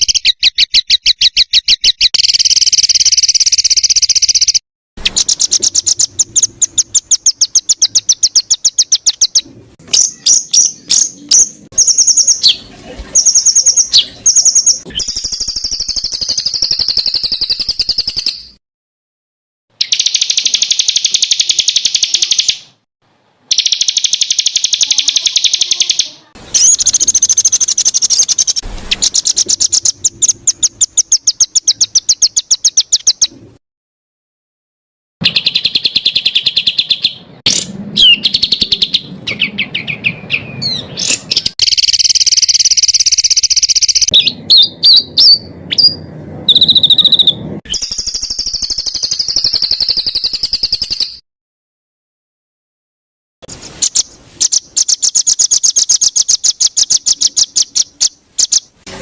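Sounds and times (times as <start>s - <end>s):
songbirds singing rapid repeated notes: 0.0s - 18.6s, 19.7s - 22.8s, 23.4s - 33.6s, 35.2s - 51.2s, 53.4s - 59.0s
bird warbling with gliding tones: 23.5s - 33.6s.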